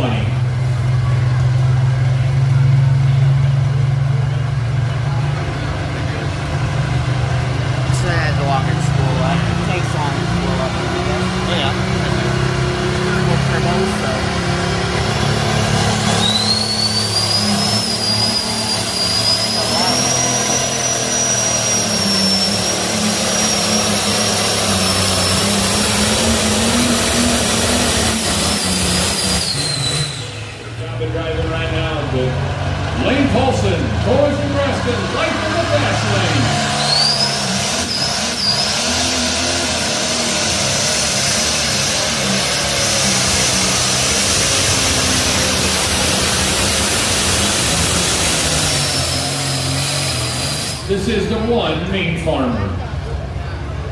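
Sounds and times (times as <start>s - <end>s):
diesel engine running under load: 0.0s - 53.9s
high turbo whine: 0.0s - 53.9s.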